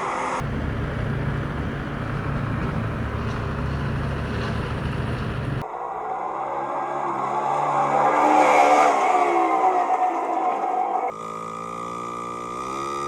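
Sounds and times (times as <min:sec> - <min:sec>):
vehicle engine rumbling: 0:00.4 - 0:05.6.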